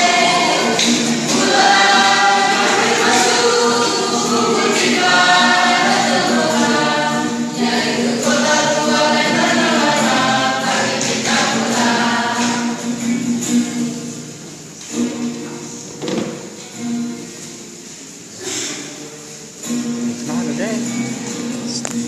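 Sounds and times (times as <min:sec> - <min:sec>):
choir singing: 0:00.0 - 0:13.3.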